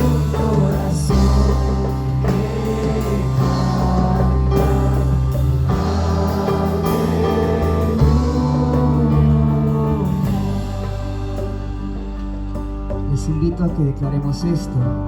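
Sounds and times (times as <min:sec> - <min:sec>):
person singing: 0:00.0 - 0:12.4
band playing praise song: 0:00.0 - 0:15.0.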